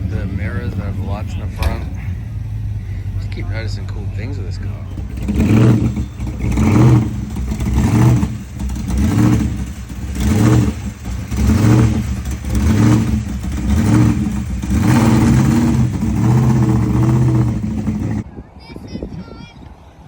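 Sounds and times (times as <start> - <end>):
car engine revving: 0.0 - 18.2.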